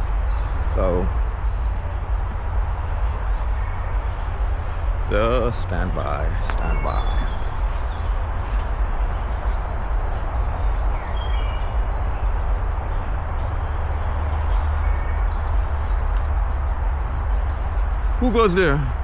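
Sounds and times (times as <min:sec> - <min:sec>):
bird chirps: 0:00.0 - 0:12.2
outdoor noise with low rumble: 0:00.0 - 0:19.0.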